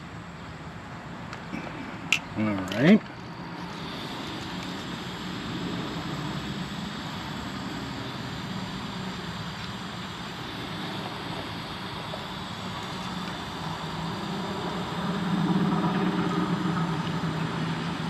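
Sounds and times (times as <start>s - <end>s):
faint high whine: 0.0s - 18.0s
heat gun fan blowing: 1.2s - 18.0s.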